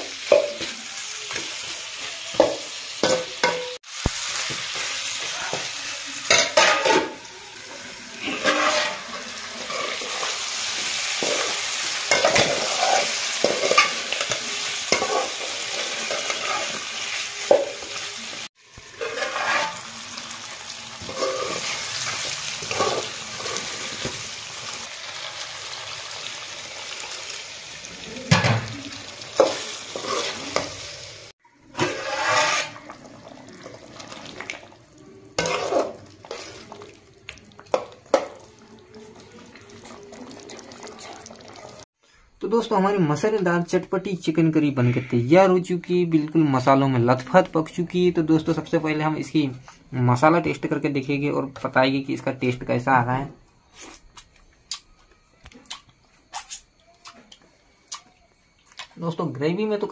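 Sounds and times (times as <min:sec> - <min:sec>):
meat sizzling in a pot: 0:00.0 - 0:42.0
metal spatula scraping a pot: 0:06.3 - 0:10.4, 0:11.2 - 0:17.0, 0:18.9 - 0:20.0, 0:21.0 - 0:24.0, 0:29.4 - 0:30.8, 0:31.6 - 0:33.0, 0:35.4 - 0:36.8.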